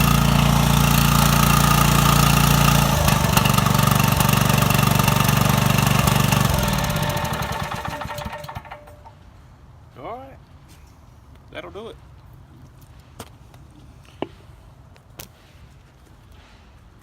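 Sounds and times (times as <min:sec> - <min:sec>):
small gas engine running: 0:00.0 - 0:09.1.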